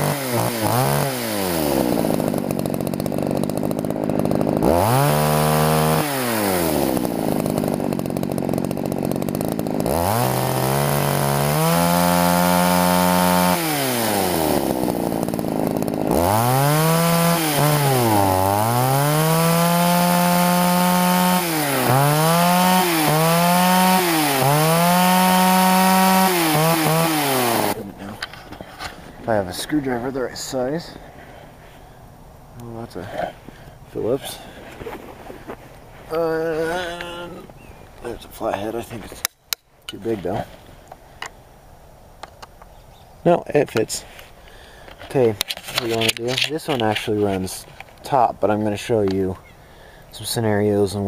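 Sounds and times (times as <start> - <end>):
chainsaw engine revving: 0.0 - 27.9.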